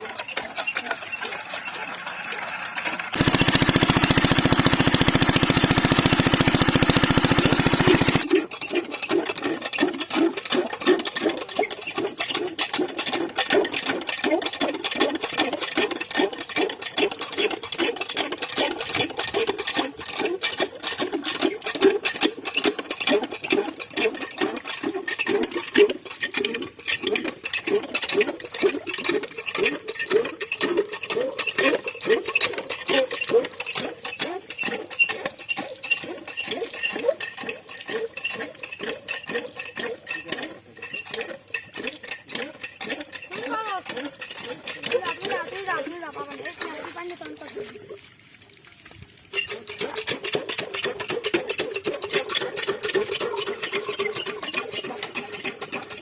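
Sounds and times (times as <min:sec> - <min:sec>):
diesel engine rattle: 0:00.0 - 0:08.7
diesel engine chugging: 0:02.0 - 0:08.3.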